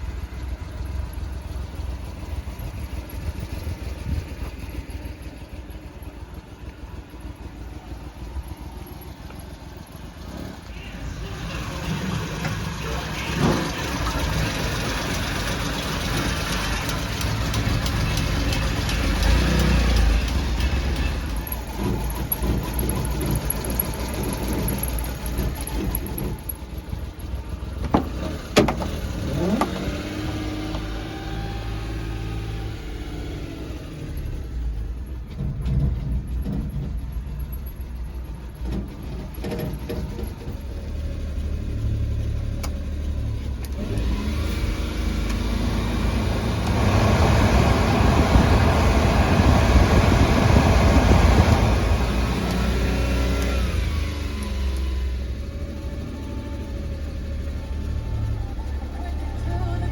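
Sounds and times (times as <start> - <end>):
small engine revving: 10.3 - 26.6, 28.0 - 34.8, 41.0 - 59.9.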